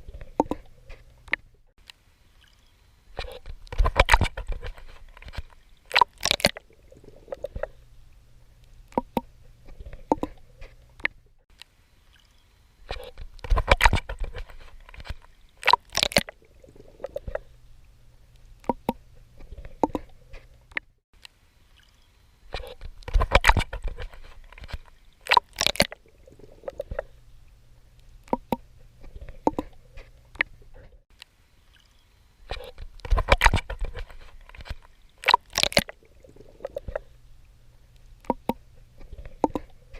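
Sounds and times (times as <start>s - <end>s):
water lapping: 0.0s - 20.8s, 21.6s - 39.9s
water dripping: 0.2s - 12.5s, 22.9s - 28.7s, 32.8s - 39.8s
water splashing from swimming: 2.4s - 7.9s, 8.7s - 11.2s, 12.1s - 17.6s, 21.7s - 27.2s, 28.1s - 30.8s, 31.7s - 37.2s, 38.0s - 39.9s.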